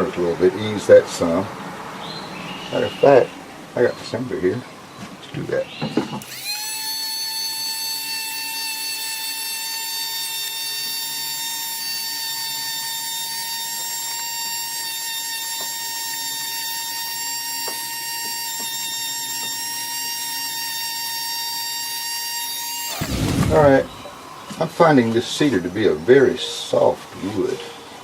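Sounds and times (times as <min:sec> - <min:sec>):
electric sander whining: 0:06.2 - 0:24.2.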